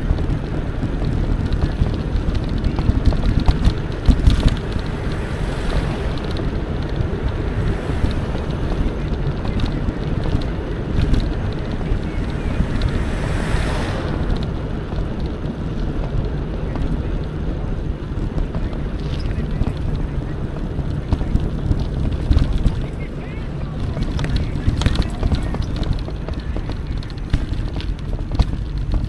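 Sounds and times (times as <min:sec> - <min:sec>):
bike clicks and rattles: 0:00.0 - 0:13.2, 0:23.8 - 0:29.0
bicycle tyre noise: 0:00.0 - 0:29.0
wind buffeting microphone: 0:00.0 - 0:29.0.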